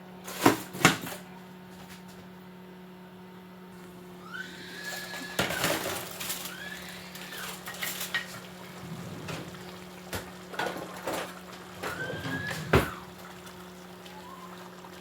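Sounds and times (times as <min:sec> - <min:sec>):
short squeaks: 0:03.8 - 0:09.7, 0:11.8 - 0:13.2.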